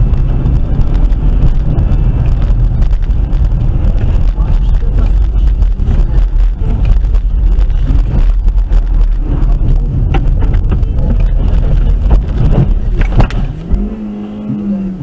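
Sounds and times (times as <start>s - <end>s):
wind buffeting microphone: 0.0s - 14.1s
engine and road noise rumble: 0.0s - 15.0s.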